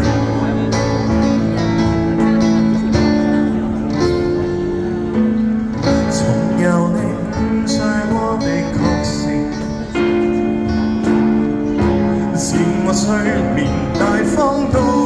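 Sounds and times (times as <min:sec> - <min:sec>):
live band guitar passage: 0:00.0 - 0:15.0
person singing: 0:05.9 - 0:15.0.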